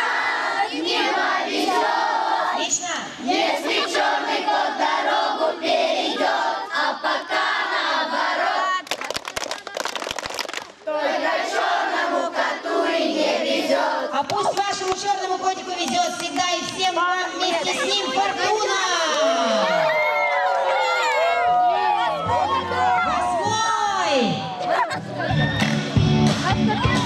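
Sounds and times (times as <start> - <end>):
children singing and chanting: 0.0 - 8.8, 10.9 - 14.3, 16.8 - 20.0.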